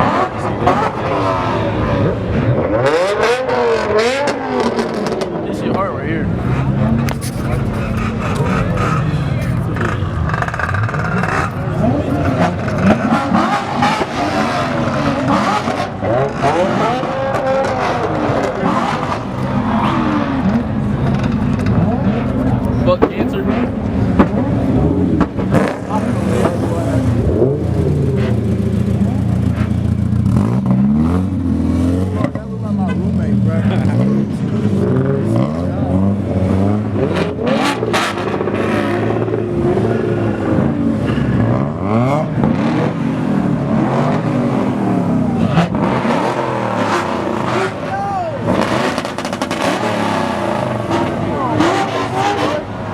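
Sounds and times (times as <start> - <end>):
car engines revving: 0.0 - 52.9.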